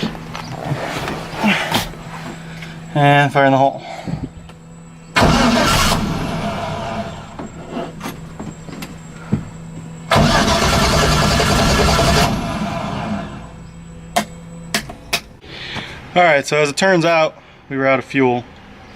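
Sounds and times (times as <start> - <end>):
engine cranking and firing: 4.1 - 15.4.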